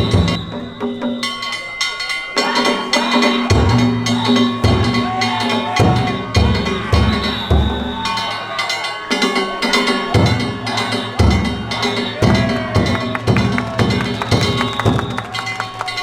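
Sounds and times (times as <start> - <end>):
taiko drum beats: 0.0 - 1.6, 2.7 - 8.4, 9.3 - 16.0
bamboo flute long notes: 4.2 - 16.0.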